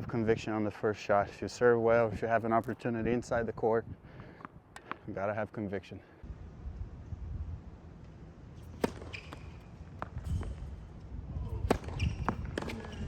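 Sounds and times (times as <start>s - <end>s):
tennis ball hit and bouncing: 4.4s - 5.0s, 8.6s - 10.9s, 11.5s - 13.0s.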